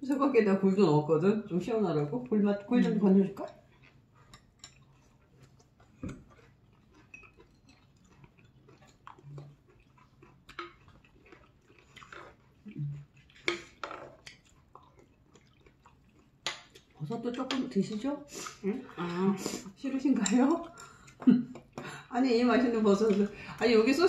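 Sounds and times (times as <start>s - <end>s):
people chewing with wet mouth sounds: 1.2s - 24.0s.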